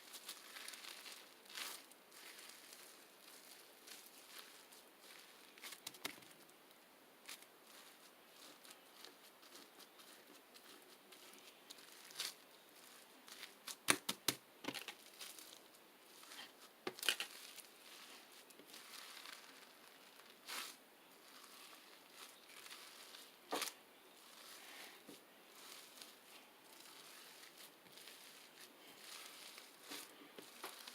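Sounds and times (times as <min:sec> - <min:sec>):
sharp pops and clicks: 0:13.8 - 0:14.9.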